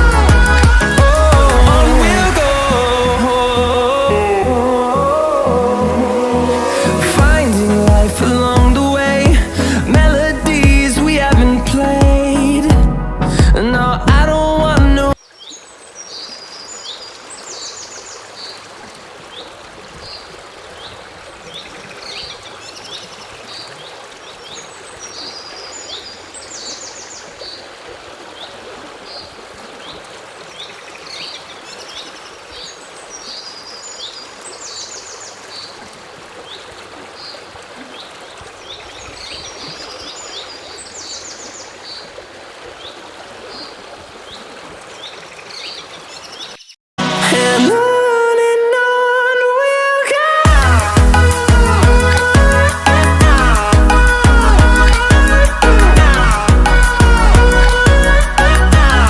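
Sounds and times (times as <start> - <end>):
songbirds chirping: 0.0 - 46.8
stream running: 0.0 - 59.0.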